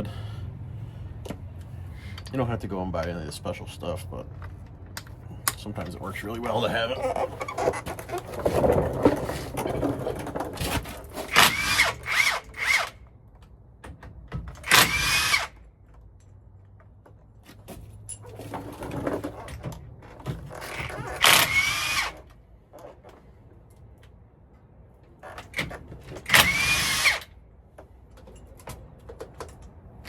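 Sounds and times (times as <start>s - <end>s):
power tool whining: 11.2s - 13.0s, 14.7s - 15.5s, 20.8s - 22.3s, 26.2s - 27.3s.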